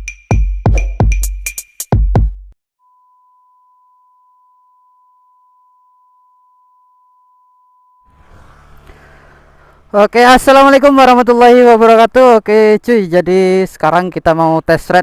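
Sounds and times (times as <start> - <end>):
steady pure tone: 2.8 - 10.1.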